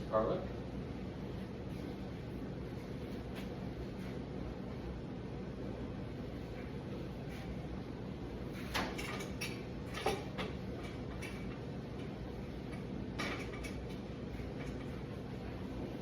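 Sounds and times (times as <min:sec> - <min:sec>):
kitchen background hum: 0:00.0 - 0:16.0.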